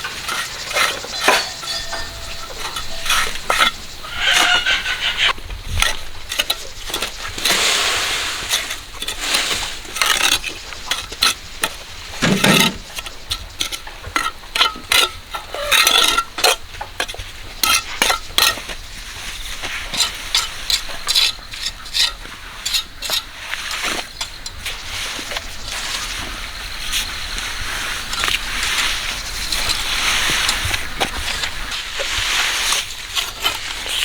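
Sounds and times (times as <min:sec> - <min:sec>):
tool scraping wet concrete: 0:00.0 - 0:18.7, 0:27.8 - 0:34.0.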